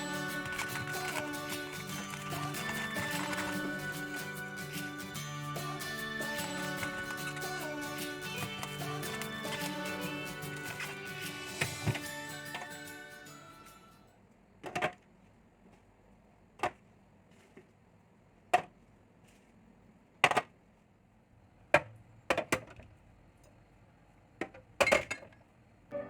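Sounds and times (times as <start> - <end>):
containers knocking and clacking: 0.0 - 12.7.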